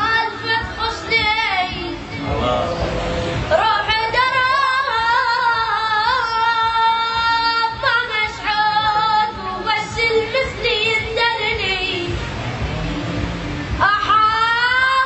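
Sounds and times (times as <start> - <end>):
person singing slow melody: 0.0 - 4.0.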